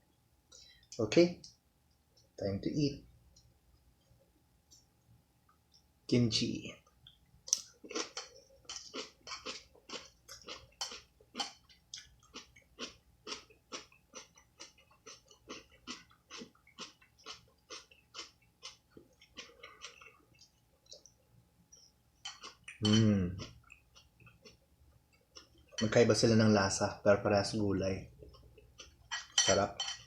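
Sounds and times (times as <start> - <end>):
crunchy chewing: 7.5 - 25.8.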